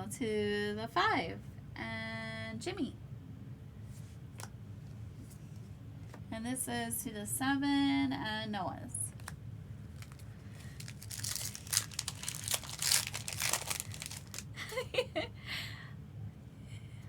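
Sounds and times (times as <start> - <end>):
foil wrapper crinkling and tearing: 9.1 - 14.7.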